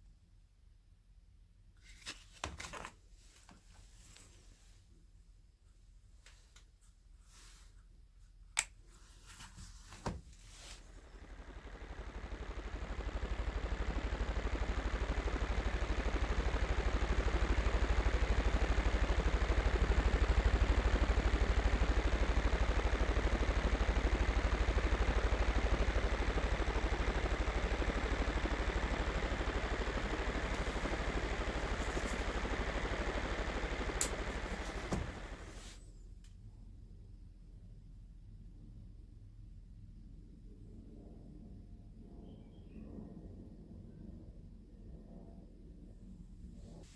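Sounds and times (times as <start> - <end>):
small electric motor whirring: 10.8 - 35.7
clicks: 11.0 - 35.5.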